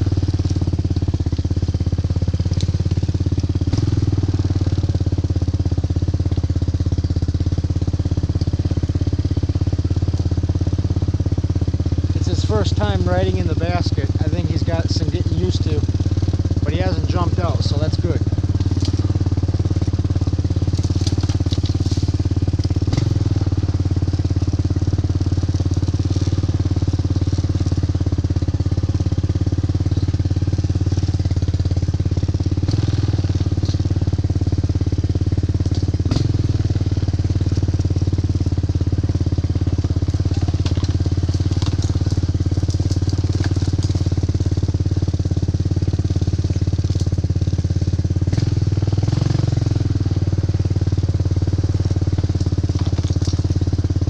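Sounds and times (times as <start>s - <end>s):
atv engine running: 0.0s - 54.0s
knocks and rattles over ground: 12.0s - 54.0s.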